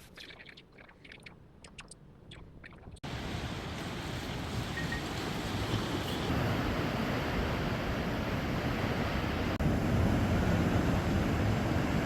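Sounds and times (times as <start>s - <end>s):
sea surf washing on shore: 3.1s - 12.0s.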